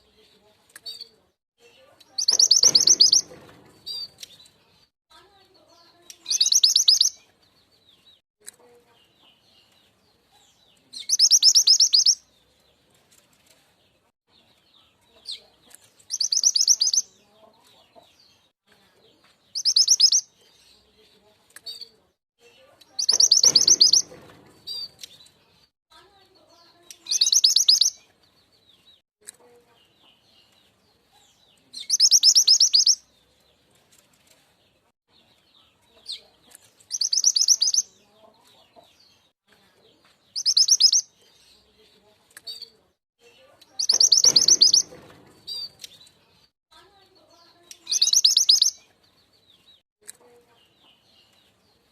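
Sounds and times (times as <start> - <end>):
faint bird chirps: 0.8 - 4.4, 6.0 - 7.2, 10.3 - 12.2, 14.8 - 17.5, 19.5 - 21.0, 21.6 - 25.1, 26.5 - 28.1, 29.4 - 33.0, 35.6 - 38.0, 40.3 - 41.6, 42.4 - 45.9, 47.2 - 48.9
bird high rapid trill: 2.2 - 4.1, 23.0 - 24.9, 43.8 - 45.7.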